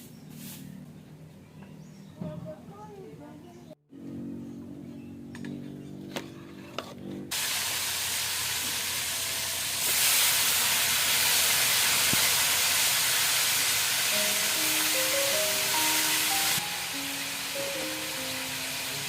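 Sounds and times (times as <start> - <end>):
food sizzling in hot oil: 7.3 - 19.0.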